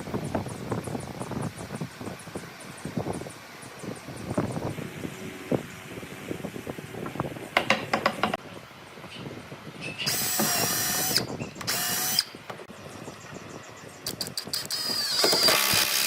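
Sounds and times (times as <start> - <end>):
power drill whining: 10.1 - 12.3, 14.5 - 16.0.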